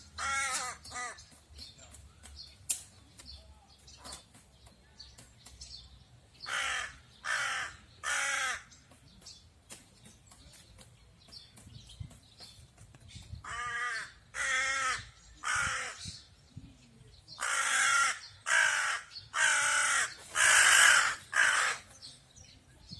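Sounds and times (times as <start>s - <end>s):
crow cawing: 0.2s - 1.2s, 6.5s - 8.7s, 13.5s - 16.0s, 17.4s - 21.9s.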